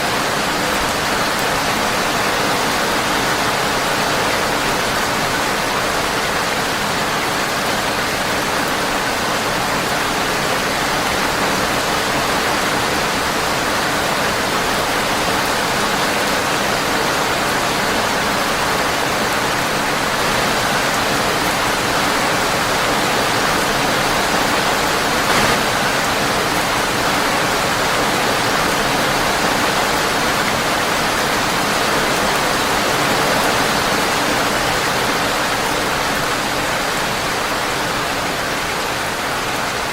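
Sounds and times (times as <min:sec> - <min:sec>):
rain on a windowpane: 0:00.0 - 0:39.9
short sharp click: 0:25.3 - 0:25.8.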